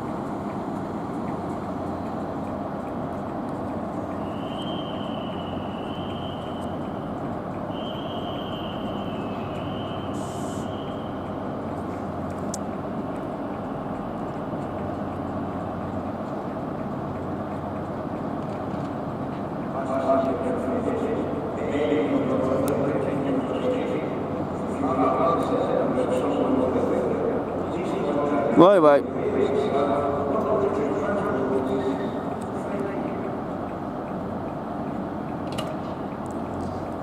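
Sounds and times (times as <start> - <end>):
trains rumbling and humming: 0.0 - 37.0
short hiss: 10.1 - 10.7.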